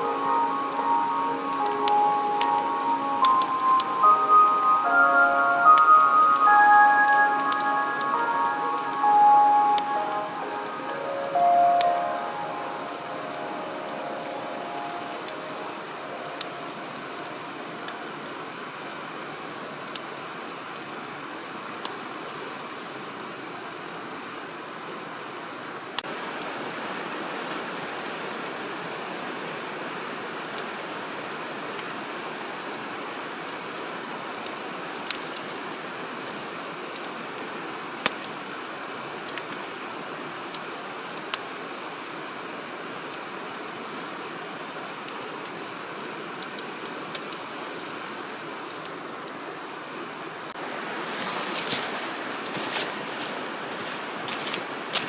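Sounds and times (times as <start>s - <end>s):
wood fire crackling: 0.0s - 24.9s, 40.4s - 55.0s.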